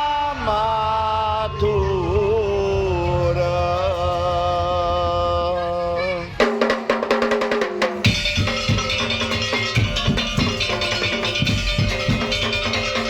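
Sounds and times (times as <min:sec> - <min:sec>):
deep drum beats: 0:06.4 - 0:13.0
sharp percussion strikes: 0:06.4 - 0:13.0.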